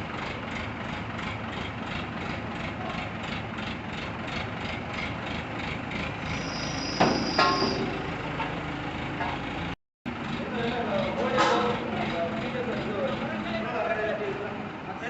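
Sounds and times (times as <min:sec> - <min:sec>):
heavy engine pulsing: 0:00.0 - 0:15.0
loud metallic clangs: 0:07.0 - 0:08.2, 0:11.2 - 0:11.9.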